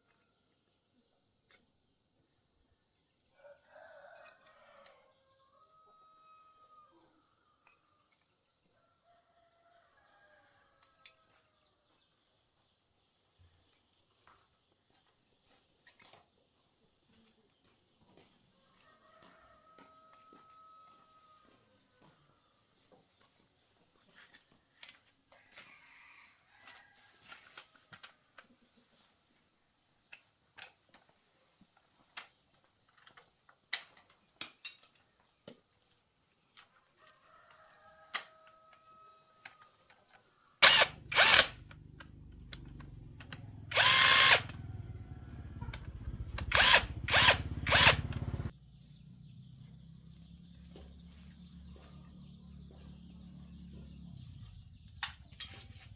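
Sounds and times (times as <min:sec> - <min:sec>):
rooster crowing: 0:03.4 - 0:07.2, 0:08.8 - 0:11.4, 0:18.6 - 0:22.2, 0:25.4 - 0:27.6, 0:37.0 - 0:39.7, 0:42.6 - 0:48.5
power tool harsh bursts: 0:40.6 - 0:41.6, 0:43.7 - 0:44.6, 0:46.0 - 0:48.5
power tool running: 0:40.6 - 0:48.5.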